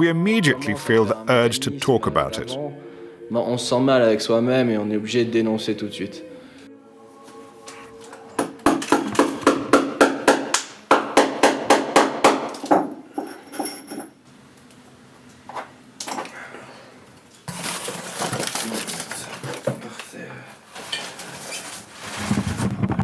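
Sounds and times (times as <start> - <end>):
hammer striking: 8.4 - 13.0.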